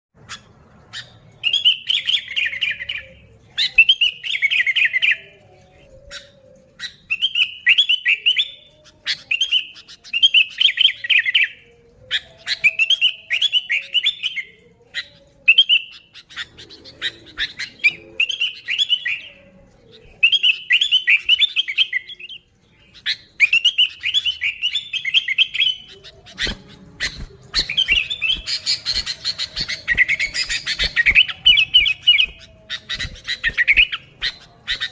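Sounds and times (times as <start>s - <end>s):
bird warbling song: 0.2s - 34.9s
sharp bird chirps: 23.5s - 34.9s.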